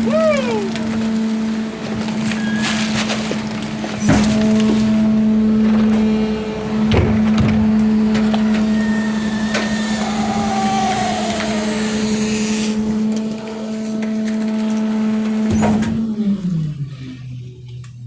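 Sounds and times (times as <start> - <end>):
garbage truck engine revving: 0.0 - 18.0
metal clanks: 2.3 - 9.9.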